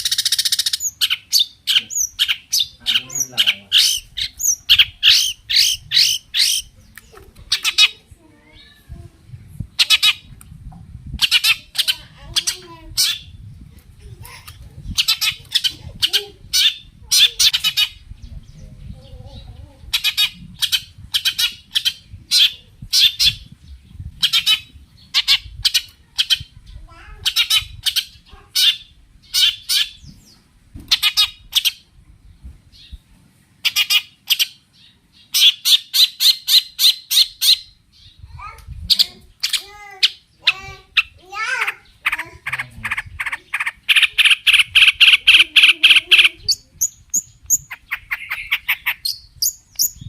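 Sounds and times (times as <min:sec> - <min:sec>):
bird giving harsh scratchy calls: 0:00.0 - 0:06.8, 0:11.2 - 0:13.3, 0:14.5 - 0:18.0, 0:33.6 - 0:34.6, 0:38.9 - 0:50.0.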